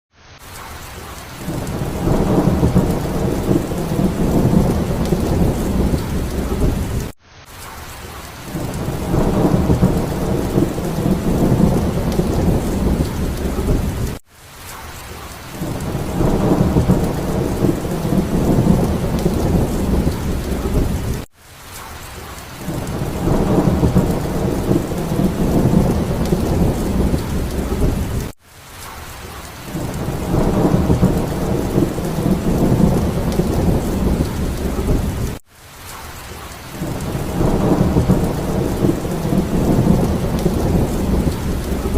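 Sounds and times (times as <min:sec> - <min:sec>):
heavy rain: 0:00.2 - 0:41.9
rolling thunder: 0:01.5 - 0:07.1, 0:08.6 - 0:14.2, 0:15.6 - 0:21.3, 0:22.7 - 0:28.3, 0:29.8 - 0:35.4, 0:36.8 - 0:41.9.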